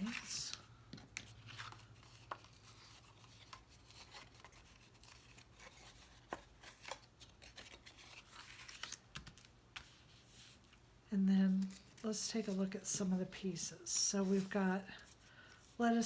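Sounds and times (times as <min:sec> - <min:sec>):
paper crinkles: 0:00.0 - 0:10.8.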